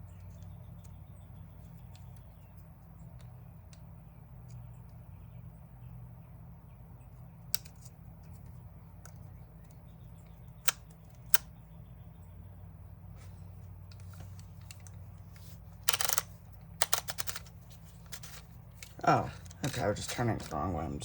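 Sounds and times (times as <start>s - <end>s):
steady low hum: 0.0s - 21.0s
plastic parts clicking: 7.5s - 11.5s, 13.9s - 20.6s
rapid clicking of turned part: 15.8s - 17.5s.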